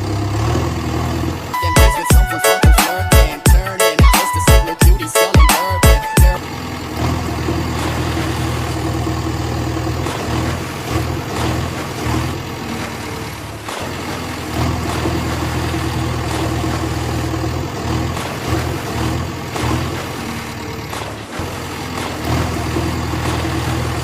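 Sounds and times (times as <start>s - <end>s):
heavy engine idling: 0.0s - 2.4s, 6.1s - 24.0s.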